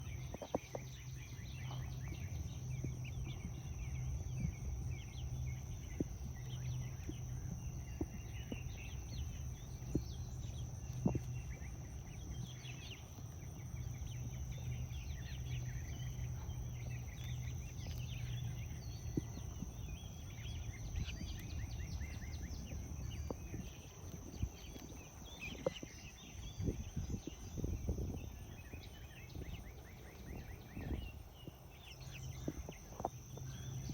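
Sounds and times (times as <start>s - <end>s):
birds chirping: 0.0s - 33.9s
low steady hum: 0.0s - 33.9s
rabbit munching leaves: 1.6s - 30.6s.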